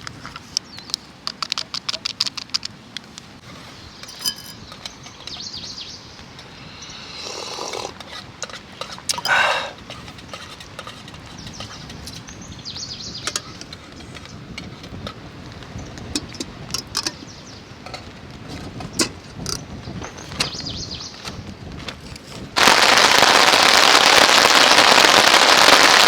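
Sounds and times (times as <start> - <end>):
harsh bird call: 9.2 - 9.8.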